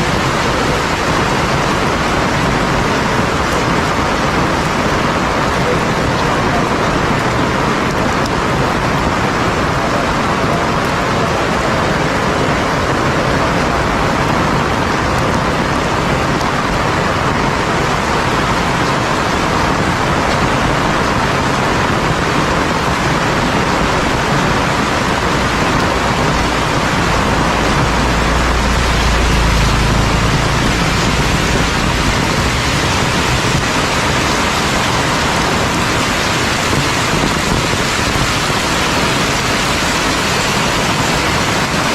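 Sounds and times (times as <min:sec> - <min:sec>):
heavy rain pouring: 0:00.0 - 0:41.9
deep rumble: 0:22.8 - 0:39.3.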